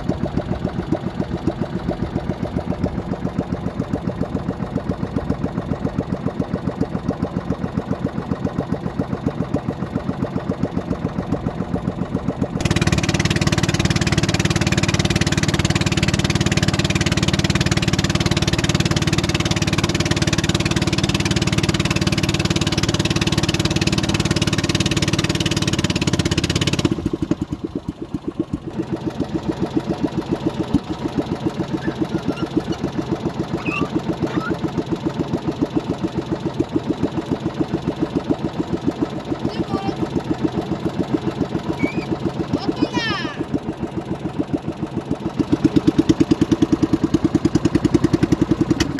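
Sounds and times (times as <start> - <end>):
motorboat engine running: 0.0 - 48.9.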